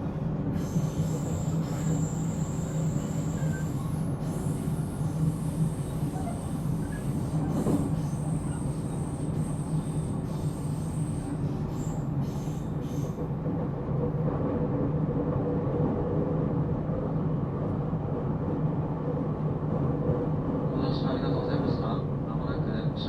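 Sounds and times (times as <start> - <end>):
train running gear rumble and hum: 0.0 - 23.0
high-pitched wheel squeal: 0.6 - 4.7.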